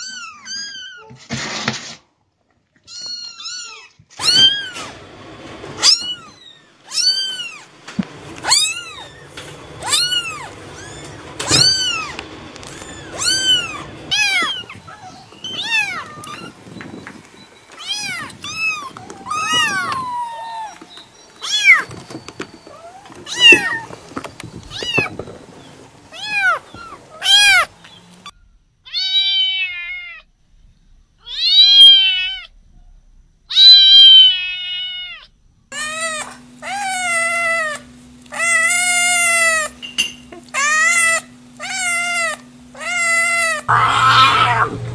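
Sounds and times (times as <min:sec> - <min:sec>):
cat meowing: 0:09.8 - 0:12.2, 0:12.8 - 0:16.6, 0:17.8 - 0:20.8, 0:22.7 - 0:23.9, 0:28.9 - 0:30.3, 0:31.2 - 0:32.5, 0:33.5 - 0:39.7, 0:40.6 - 0:44.9
steady low hum: 0:35.3 - 0:44.9.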